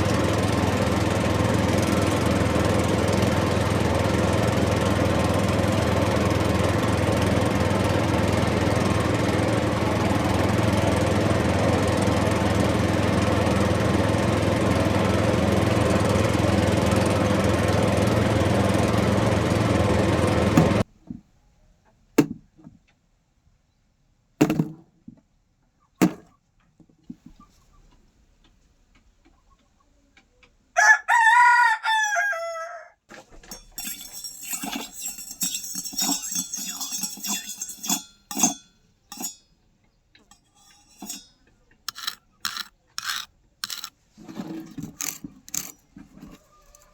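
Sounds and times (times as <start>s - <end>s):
short knocks: 22.2s - 22.8s
rooster crowing: 30.8s - 33.0s, 46.2s - 46.9s
light clinking: 33.4s - 39.5s, 40.3s - 43.9s.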